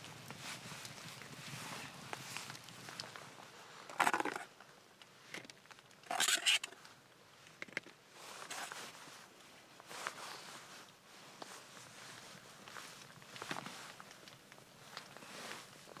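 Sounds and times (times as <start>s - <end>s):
handling noise rustling scrape: 6.1s - 6.8s, 8.3s - 9.1s.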